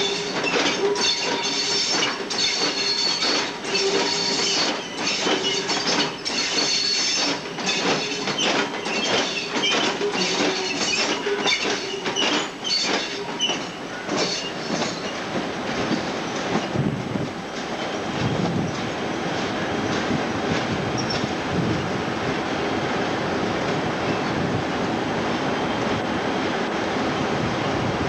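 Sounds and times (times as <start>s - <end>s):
high wheel squeal: 0.0s - 15.2s, 21.0s - 21.3s
train wheels clattering over joints: 0.0s - 21.4s.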